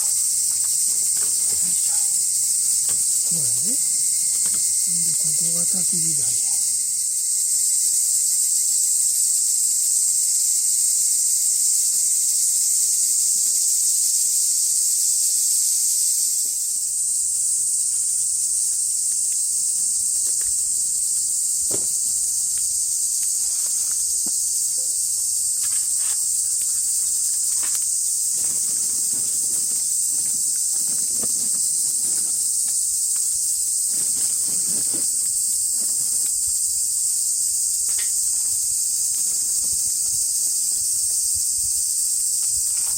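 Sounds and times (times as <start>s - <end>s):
faint knocks and rustles: 0.0s - 4.8s, 21.6s - 36.4s
high-pitched insect chorus: 0.0s - 42.9s.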